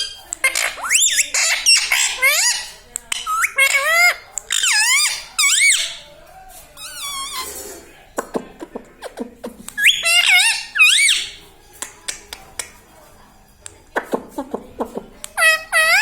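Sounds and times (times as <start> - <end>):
parrot squawking: 0.0 - 6.0, 9.8 - 11.4, 15.4 - 16.0.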